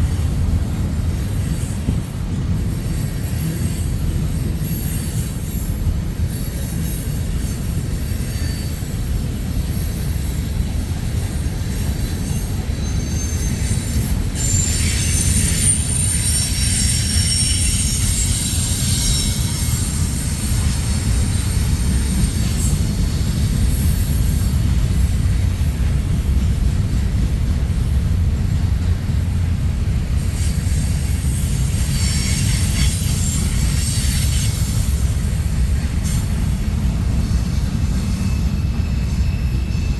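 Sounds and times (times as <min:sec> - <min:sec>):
train cars rumbling on rails: 0:00.0 - 0:39.9
high-pitched wheel squeal: 0:02.9 - 0:22.8.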